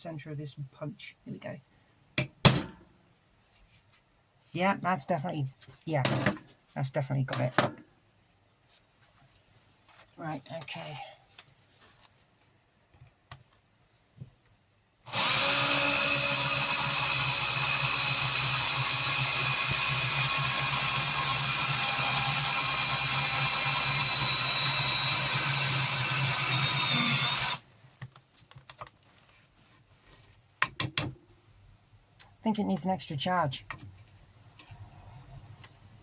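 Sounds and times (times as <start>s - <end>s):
electric drill boring through steel: 15.1s - 27.6s.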